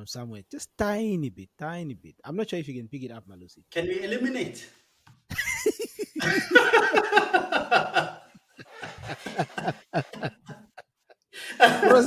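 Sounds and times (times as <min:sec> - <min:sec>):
men laughing: 0:05.3 - 0:12.0.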